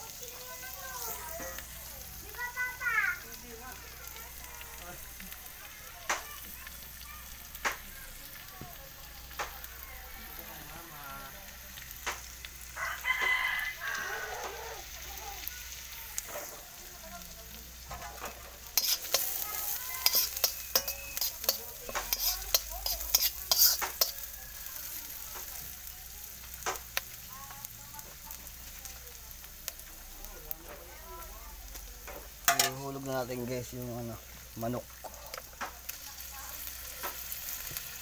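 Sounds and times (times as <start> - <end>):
onion sizzling in a wok: 0.0 - 38.0
rooster crowing: 12.8 - 15.2
metal spoon scraping a wok: 17.8 - 25.6, 32.1 - 32.8, 34.9 - 37.8.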